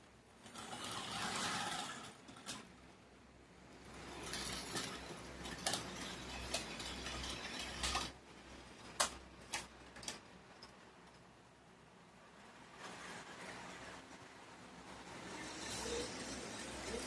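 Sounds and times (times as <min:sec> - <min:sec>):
wheels clicking on rails: 0:00.0 - 0:11.3, 0:12.6 - 0:17.0
model train motor humming: 0:00.4 - 0:02.6, 0:15.3 - 0:17.0.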